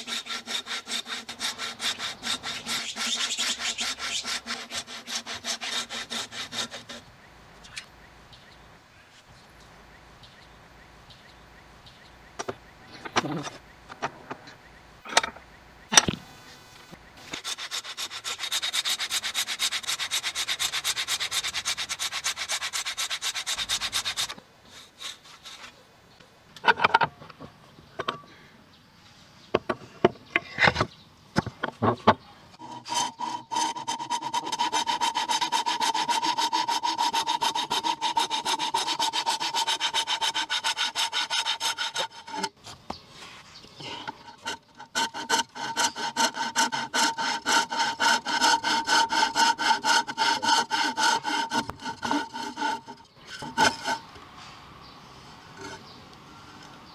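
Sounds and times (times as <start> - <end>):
hand tool rasping wood: 0.0 - 7.1, 17.2 - 25.8, 32.6 - 42.6, 43.2 - 54.1.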